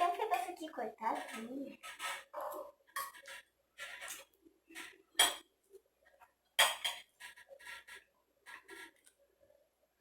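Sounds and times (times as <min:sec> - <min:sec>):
cutlery clinking on a plate: 0:06.6 - 0:07.1.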